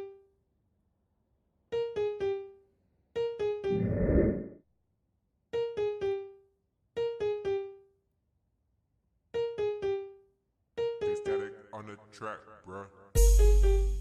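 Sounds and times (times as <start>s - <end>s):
brief rushing noise: 3.7s - 4.5s.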